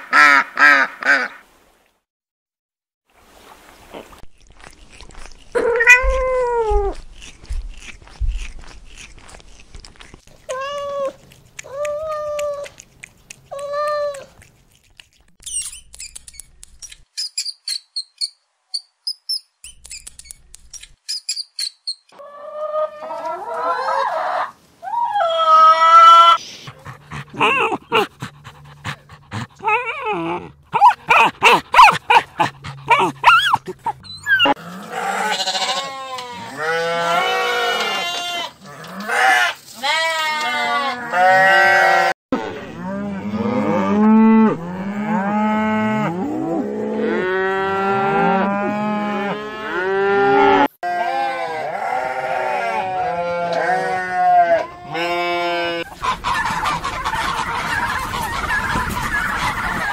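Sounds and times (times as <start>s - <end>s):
dog whining: 5.6s - 7.0s, 26.2s - 34.6s
cattle mooing: 34.4s - 39.4s
ducks quacking: 55.7s - 59.9s.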